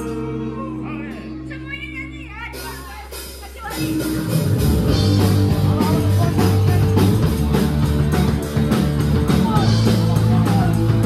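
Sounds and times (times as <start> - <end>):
bass guitar: 0.0 - 11.0
drum kit beat: 0.0 - 11.0
electric guitar: 3.6 - 11.0.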